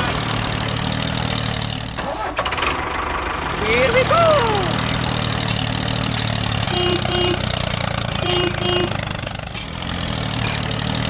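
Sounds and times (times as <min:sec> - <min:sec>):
engine running steadily: 0:00.0 - 0:11.0
horn beeps: 0:06.6 - 0:09.1.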